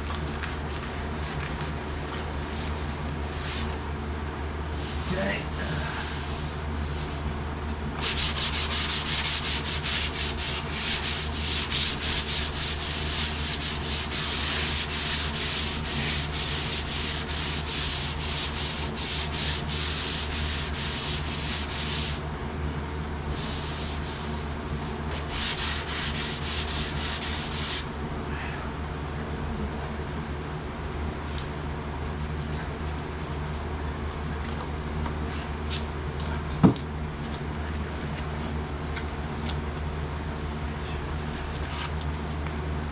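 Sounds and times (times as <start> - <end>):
steady low hum: 0.0 - 42.9
hand sanding sheet metal: 4.8 - 7.2, 8.0 - 22.2, 23.3 - 27.9.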